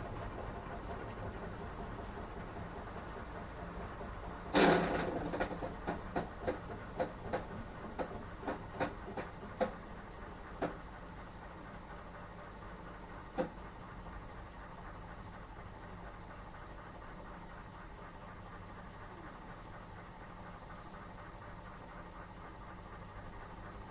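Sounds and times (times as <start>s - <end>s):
washing machine hum: 0.0s - 23.9s.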